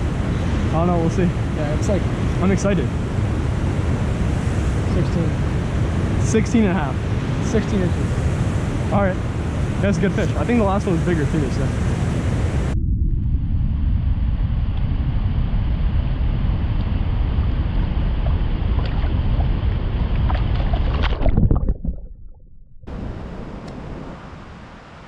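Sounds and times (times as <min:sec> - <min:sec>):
waterfall roar: 0:00.0 - 0:12.8
wind: 0:00.0 - 0:25.0.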